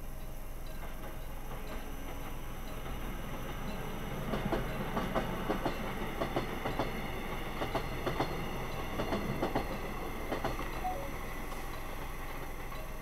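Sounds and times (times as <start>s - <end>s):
steady train rumble: 0.0s - 13.0s
train wheels clacking over joints: 0.7s - 10.8s.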